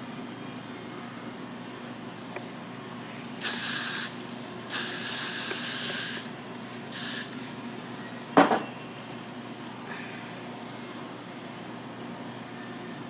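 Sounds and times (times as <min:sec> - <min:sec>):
aerosol spray can hissing: 0:03.4 - 0:07.4.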